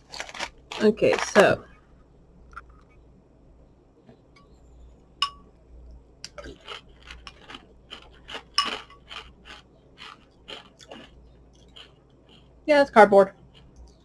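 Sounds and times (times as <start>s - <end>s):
chewing crunchy cereal: 0.0s - 1.6s, 6.3s - 12.7s, 13.3s - 14.0s
spoon clinking against bowl: 5.2s - 5.5s, 8.6s - 9.2s.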